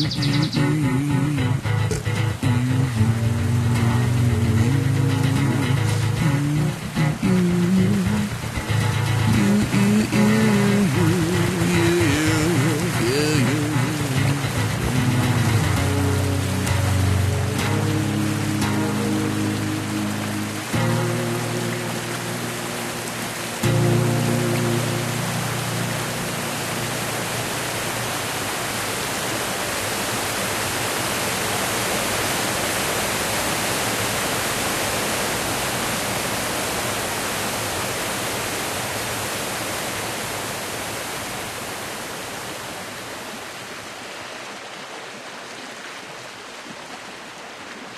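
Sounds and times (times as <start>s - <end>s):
rushing water: 0.0s - 47.9s
low musical note: 13.7s - 28.0s.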